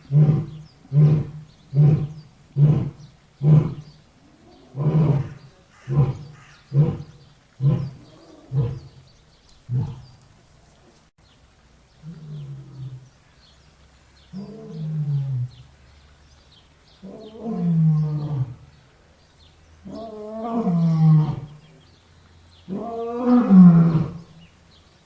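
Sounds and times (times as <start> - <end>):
lion grunting calls: 0.0 - 9.0, 9.7 - 10.2.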